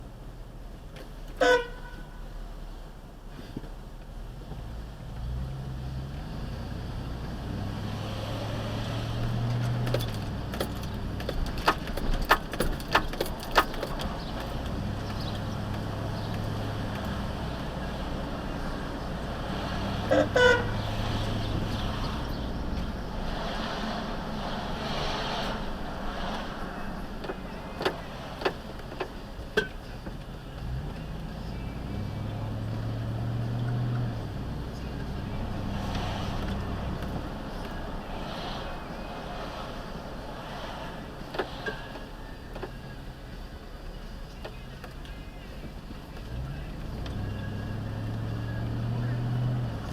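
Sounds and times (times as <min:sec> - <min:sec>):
vehicle engine humming: 0:00.0 - 0:49.9
clicks and rattles: 0:09.5 - 0:17.1.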